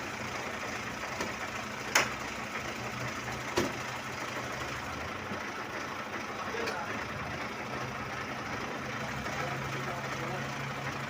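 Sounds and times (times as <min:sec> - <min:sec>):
machinery engine hum: 0:00.0 - 0:11.0.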